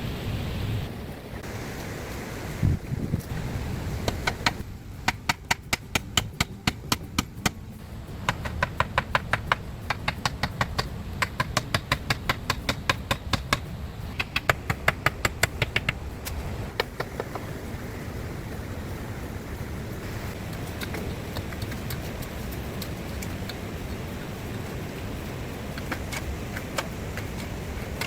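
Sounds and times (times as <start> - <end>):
steady low rumble: 0.0 - 28.0
sharp taps or knocks: 8.2 - 17.5.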